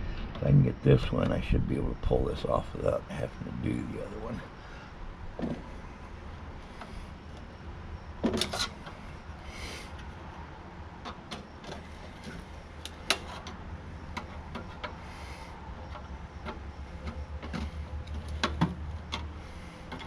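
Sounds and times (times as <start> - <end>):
metal clicks and knocks: 15.9 - 19.3.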